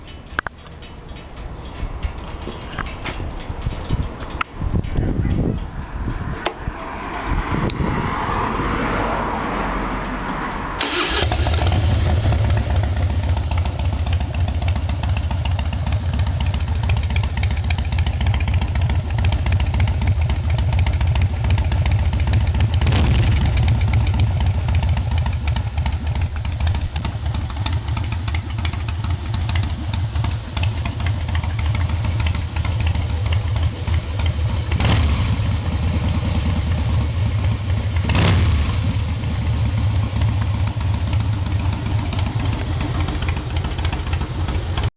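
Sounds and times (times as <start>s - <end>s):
motorcycle engine idling: 0.0s - 6.4s, 10.8s - 44.9s
motorcycle starter cranking: 10.8s - 19.6s.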